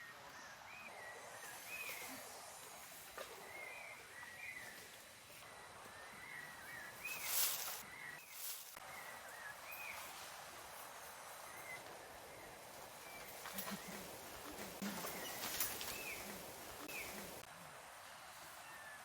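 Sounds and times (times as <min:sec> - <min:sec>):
steady background hiss: 0:00.0 - 0:19.0
rustling: 0:07.1 - 0:08.8, 0:13.1 - 0:17.5
high chirping calls: 0:13.1 - 0:17.5.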